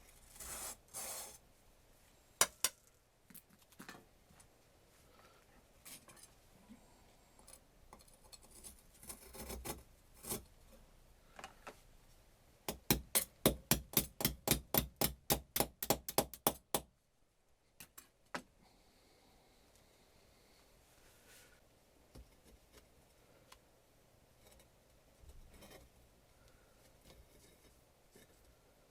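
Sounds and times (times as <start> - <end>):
hammer tapping rapidly: 12.7 - 16.8.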